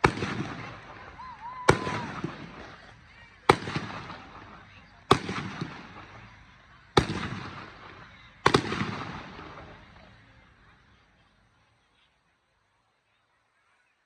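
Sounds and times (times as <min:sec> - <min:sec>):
firework shells bursting: 0:00.0 - 0:06.3, 0:07.0 - 0:09.8.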